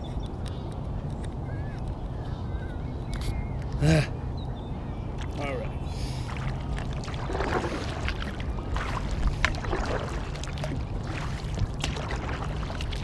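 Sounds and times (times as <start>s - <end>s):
wind rumble on microphone: 0.0s - 13.0s
kayak paddle splashing in water: 6.1s - 13.0s.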